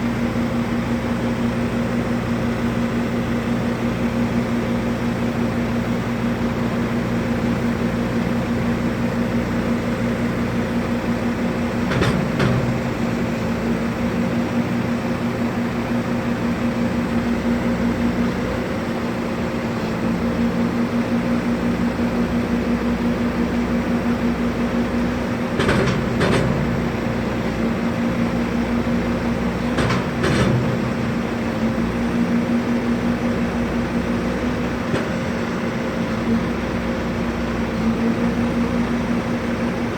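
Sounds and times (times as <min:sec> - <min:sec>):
pulsing mechanical hum: 0:10.3 - 0:39.9.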